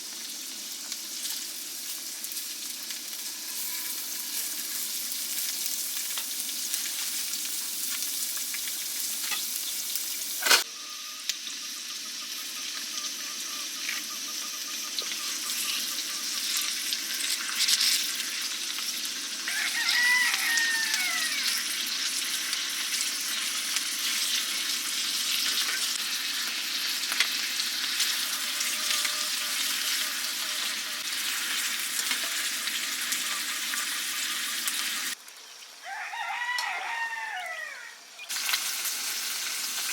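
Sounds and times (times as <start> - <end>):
steady sizzling hiss: 0.0 - 39.9
bird call: 10.6 - 16.8.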